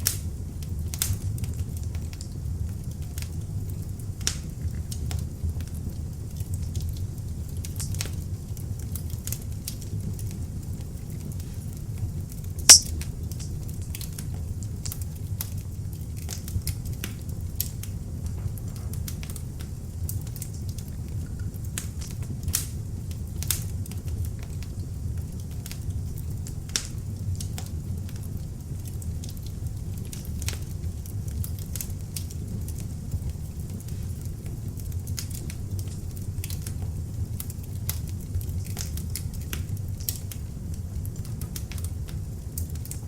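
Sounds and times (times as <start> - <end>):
fire crackling and popping: 21.5 - 43.0.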